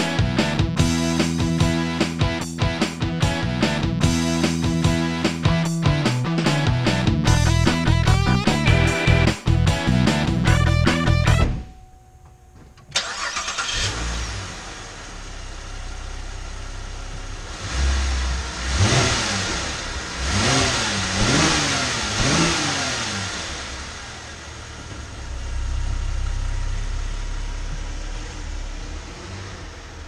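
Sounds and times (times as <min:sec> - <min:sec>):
car engine starting and running: 0:00.0 - 0:30.0
car engine revving: 0:13.0 - 0:30.0.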